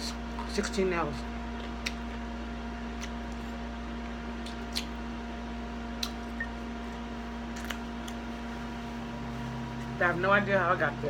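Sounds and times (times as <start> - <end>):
background hum: 0.0 - 11.0
mouth clicks and smacks chewing: 1.6 - 2.2, 2.9 - 5.0, 6.0 - 6.3.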